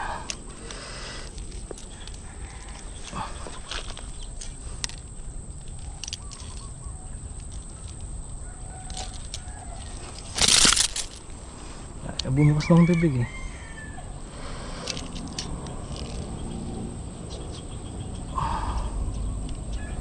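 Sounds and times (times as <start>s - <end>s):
fish thrashing and flapping: 0.0s - 11.5s
handling clicks and rustles: 0.0s - 13.2s, 14.8s - 18.2s.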